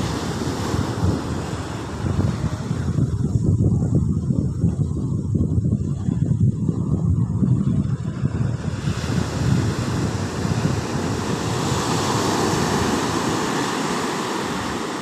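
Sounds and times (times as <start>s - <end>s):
surf breaking on shore: 0.0s - 3.3s, 8.0s - 15.0s
wind buffeting microphone: 0.0s - 15.0s.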